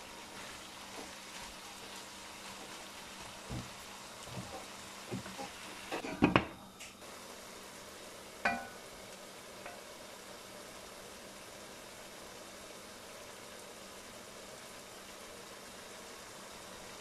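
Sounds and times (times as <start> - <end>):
food sizzling in a wok: 0.0 - 17.0
spatula scraping and knocking pan: 3.4 - 6.4.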